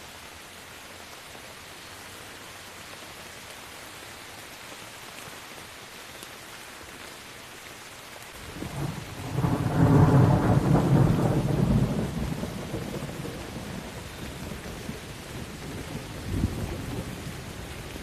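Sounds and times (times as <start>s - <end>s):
steady rain: 0.0s - 18.0s
thunder rumbling: 8.4s - 18.0s.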